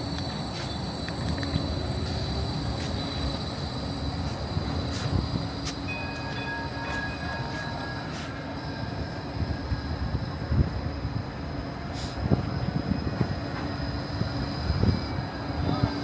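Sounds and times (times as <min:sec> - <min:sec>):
tram rumbling: 0:00.0 - 0:16.0
faint high tone: 0:05.9 - 0:09.0.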